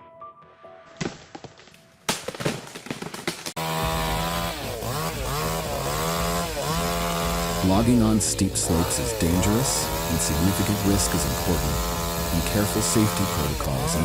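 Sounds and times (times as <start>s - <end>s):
chainsaw cutting: 2.9s - 14.0s.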